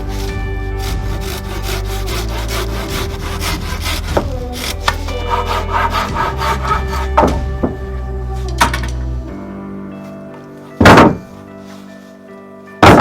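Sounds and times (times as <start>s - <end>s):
hand saw cutting wood: 0.0s - 7.4s
background music: 0.0s - 13.0s.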